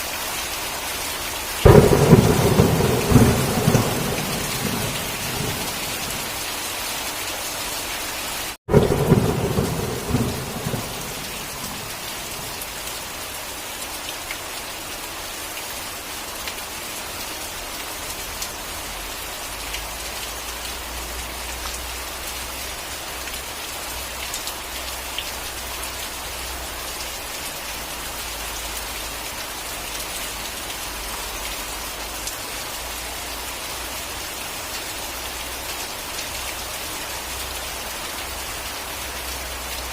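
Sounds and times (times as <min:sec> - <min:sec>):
steady rain: 0:00.0 - 0:39.9
thunder rumbling: 0:01.6 - 0:06.4, 0:08.7 - 0:12.8.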